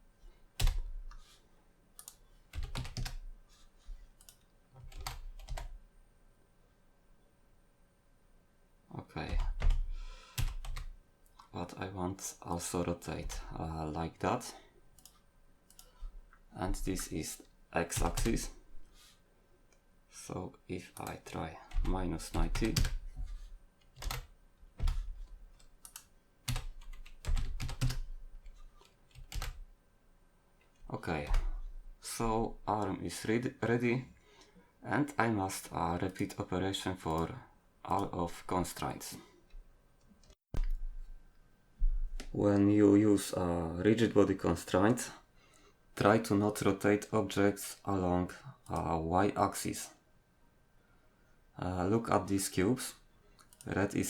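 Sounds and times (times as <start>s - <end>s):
keyboard typing clicks: 2.0s - 3.2s, 4.2s - 5.7s, 25.8s - 28.0s
keyboard key presses: 40.6s - 41.0s.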